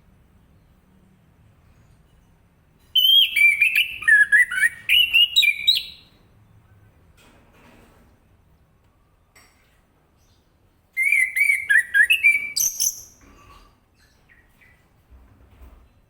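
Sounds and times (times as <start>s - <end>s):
faint bird chirps: 2.8s - 6.8s, 10.1s - 15.0s.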